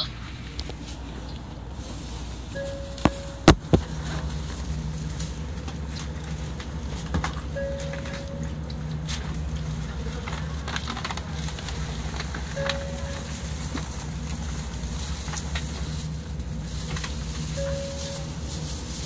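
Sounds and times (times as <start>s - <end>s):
low hum of stationary train: 0.0s - 19.0s
short steady beep: 2.6s - 3.7s, 7.6s - 8.5s, 12.6s - 13.6s, 17.6s - 18.4s.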